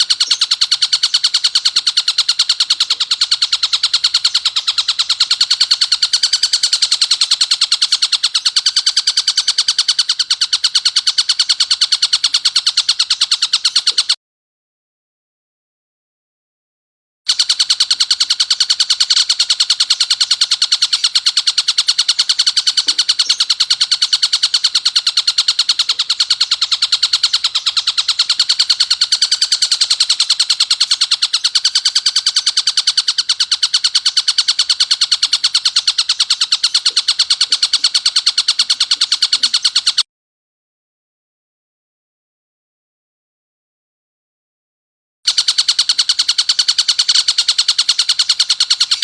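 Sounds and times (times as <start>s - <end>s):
kingfisher rasping call: 0.0s - 14.2s, 17.5s - 40.0s.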